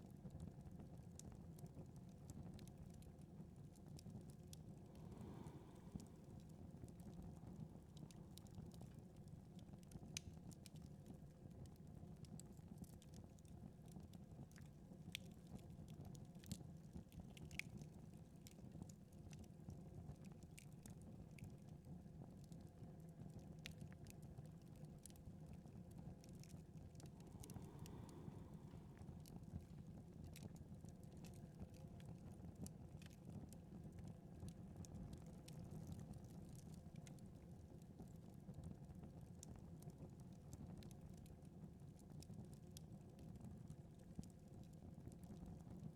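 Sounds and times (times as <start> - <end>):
low fire rumble: 0.0 - 45.9
wood fire crackling: 3.8 - 10.9, 26.2 - 31.3.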